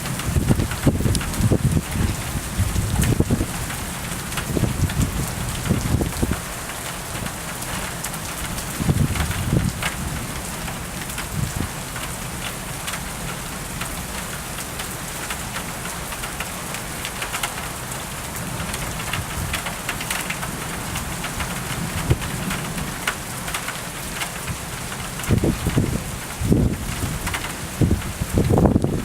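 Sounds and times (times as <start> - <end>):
thunder rumbling: 0.0 - 6.4, 25.2 - 29.0
rain falling: 0.0 - 29.0
raindrops ticking on a surface: 0.0 - 29.0.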